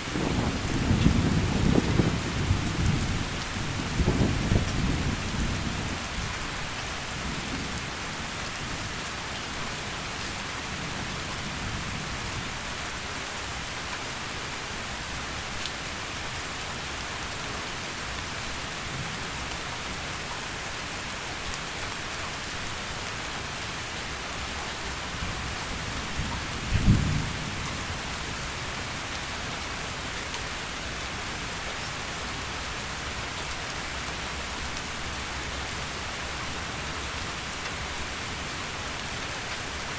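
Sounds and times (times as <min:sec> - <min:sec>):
thunder rumbling: 0:00.0 - 0:05.7, 0:26.6 - 0:27.6
heavy rain: 0:00.0 - 0:39.9.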